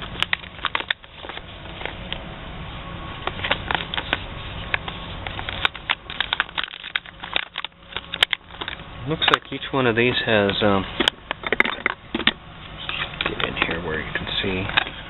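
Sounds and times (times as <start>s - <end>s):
plastic pouches crinkling: 3.2s - 9.7s.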